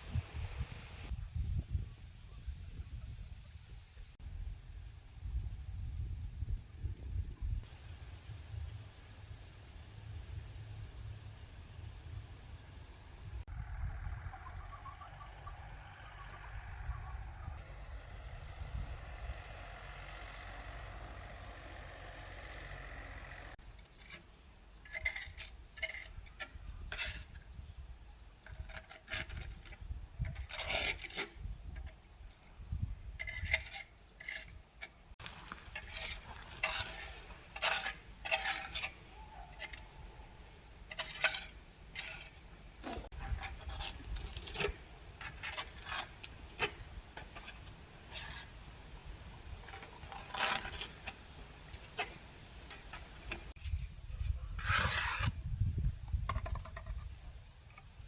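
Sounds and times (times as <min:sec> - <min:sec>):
small hard objects clinking: 0:35.2 - 0:39.9.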